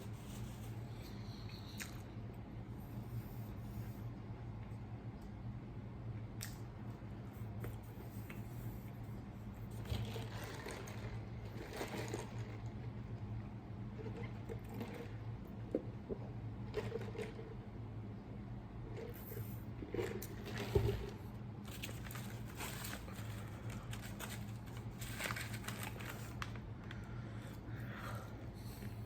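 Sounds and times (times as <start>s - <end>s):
steady low hum: 0.0s - 29.0s
small mouth clicks: 1.7s - 2.1s.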